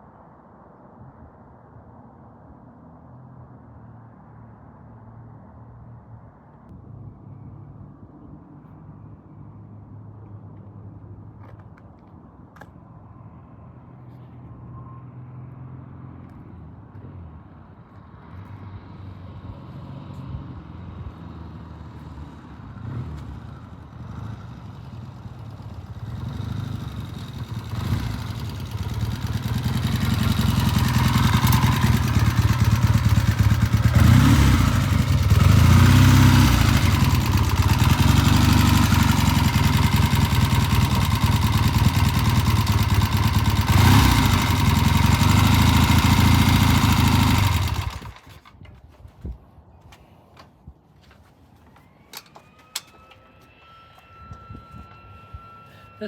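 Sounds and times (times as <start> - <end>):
motorcycle engine revving: 22.0 - 48.5.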